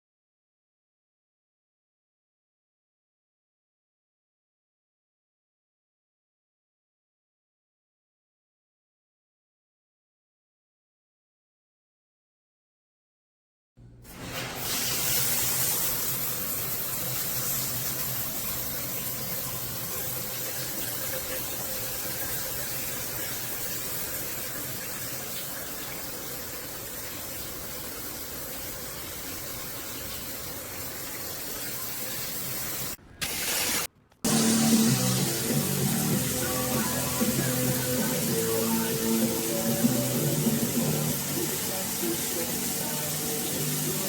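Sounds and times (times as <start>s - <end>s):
shower spray hissing: 14.1s - 44.0s.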